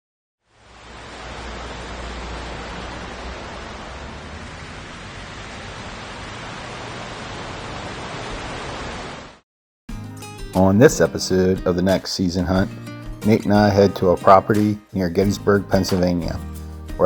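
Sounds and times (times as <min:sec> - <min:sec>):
steady rushing hiss: 0:00.5 - 0:08.4
low rumble: 0:00.6 - 0:07.8.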